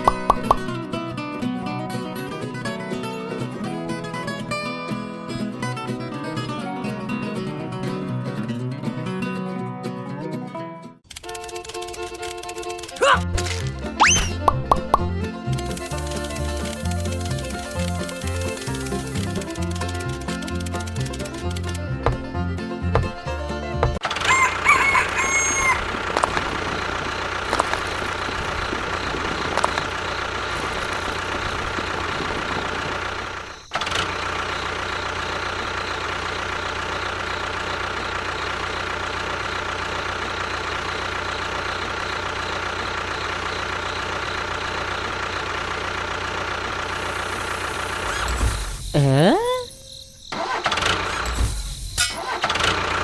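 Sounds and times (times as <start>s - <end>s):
small motor running: 15.6s - 22.3s, 24.7s - 33.7s, 46.7s - 53.0s.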